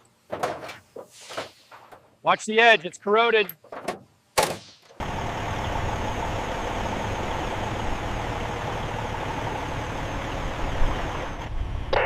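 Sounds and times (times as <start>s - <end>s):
heavy machinery engine running: 5.0s - 12.0s.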